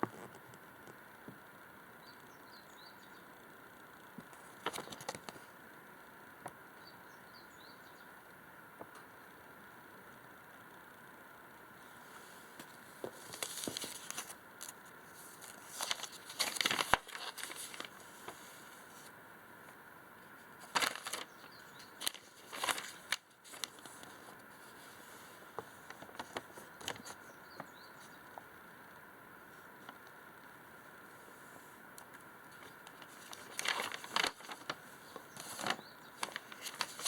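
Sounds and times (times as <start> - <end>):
crinkling and rustling handling: 4.2 - 5.5, 12.1 - 19.1, 20.6 - 28.5, 32.0 - 37.0.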